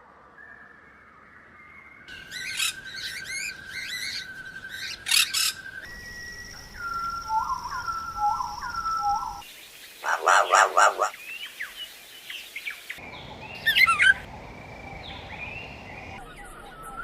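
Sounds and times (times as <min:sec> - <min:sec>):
birds chirping and whistling: 0:01.6 - 0:17.0
steady high ringing tone: 0:02.1 - 0:09.4.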